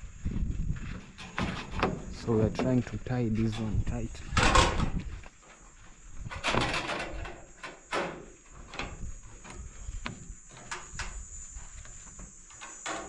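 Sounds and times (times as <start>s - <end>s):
gutter pipe scraping and clicking: 1.1s - 5.6s, 6.2s - 11.2s.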